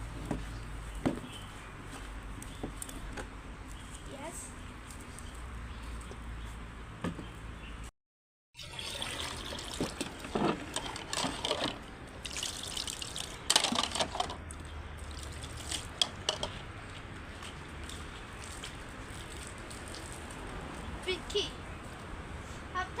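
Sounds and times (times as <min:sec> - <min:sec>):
water splashing: 0:08.6 - 0:10.7, 0:12.1 - 0:16.3
water trickling: 0:08.6 - 0:11.1, 0:12.0 - 0:16.6.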